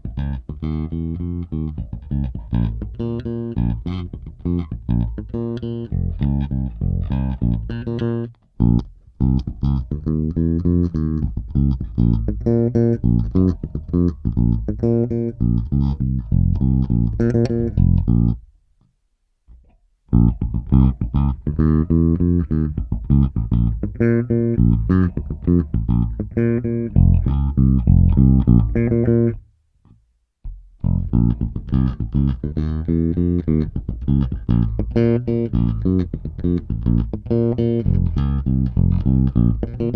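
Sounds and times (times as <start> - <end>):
bass guitar played fingerstyle: 0.0 - 18.6, 19.5 - 39.9.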